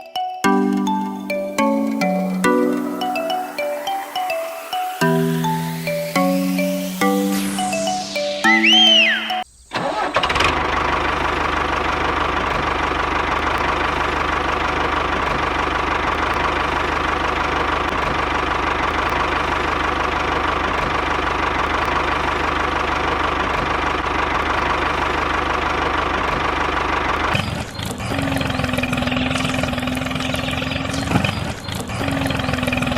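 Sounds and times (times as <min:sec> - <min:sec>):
musical jingle with chimes: 0:00.0 - 0:09.4
engine humming: 0:09.8 - 0:32.9.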